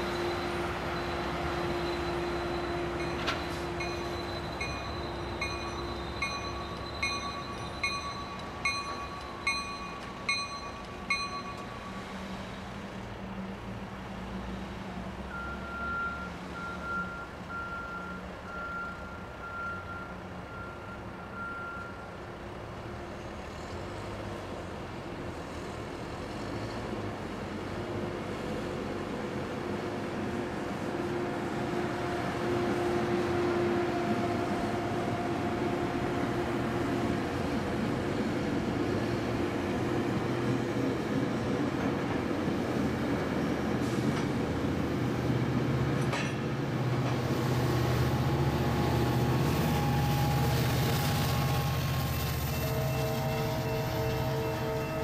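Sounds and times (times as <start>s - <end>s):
commuter train rumbling past: 0.0s - 55.0s
vehicle backup alarm beeping: 15.3s - 22.1s.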